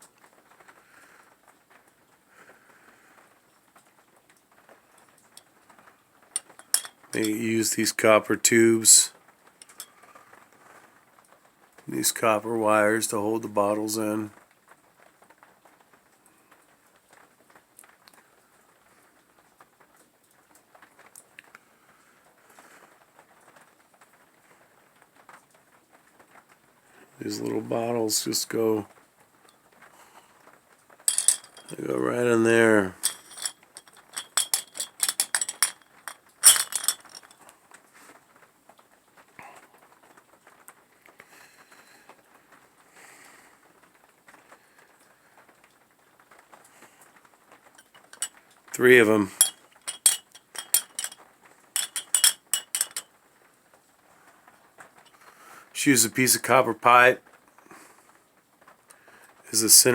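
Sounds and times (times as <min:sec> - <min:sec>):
glass bottles clinking against wire: 0:06.4 - 0:08.0, 0:08.9 - 0:09.9, 0:31.1 - 0:37.4, 0:47.8 - 0:51.2, 0:51.8 - 0:53.1
faint handling sounds: 0:06.4 - 0:10.8, 0:31.1 - 0:38.2, 0:47.7 - 0:51.2, 0:51.8 - 0:53.1.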